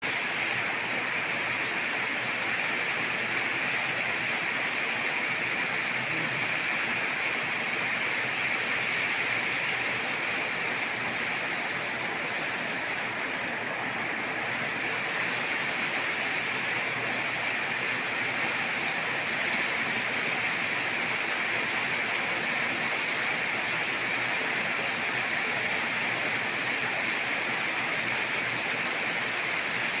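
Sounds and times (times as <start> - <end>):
steady rain falling: 0.0 - 30.0
rain drop ticks: 0.1 - 11.5.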